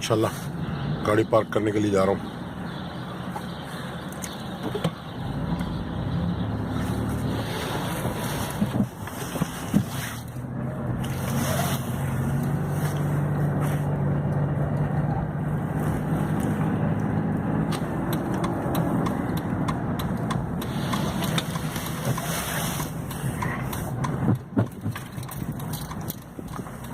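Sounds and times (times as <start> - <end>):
car engine humming: 0.0 - 26.9
scattered clicks: 16.4 - 26.9.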